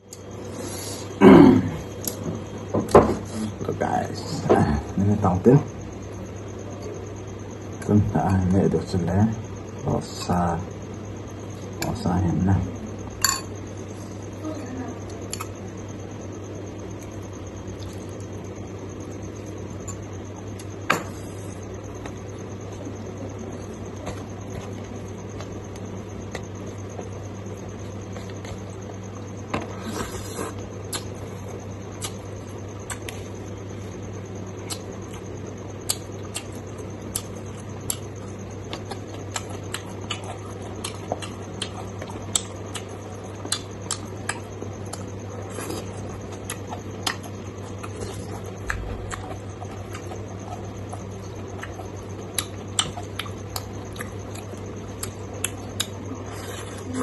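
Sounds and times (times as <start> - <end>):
person chewing food: 29.6 - 33.3, 34.6 - 57.0.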